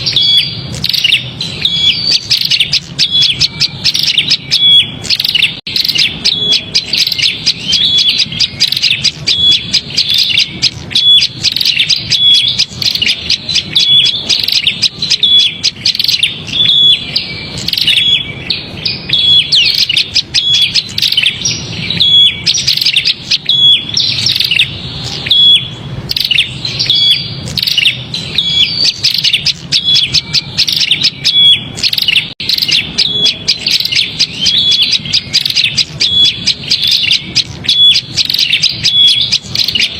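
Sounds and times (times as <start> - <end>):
bird chattering with high chips: 0.0 - 39.9.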